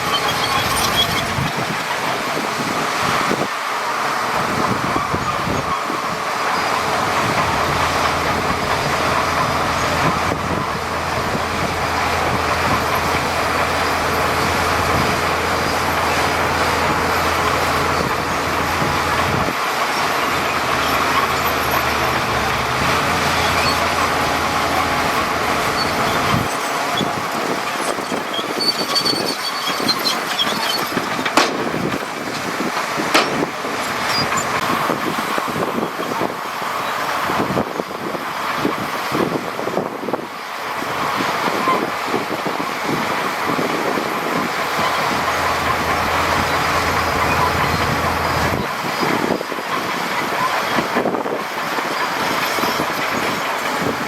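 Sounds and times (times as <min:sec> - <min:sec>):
diesel machinery engine drone: 0:00.0 - 0:54.0
clanks and knocks: 0:25.7 - 0:34.7.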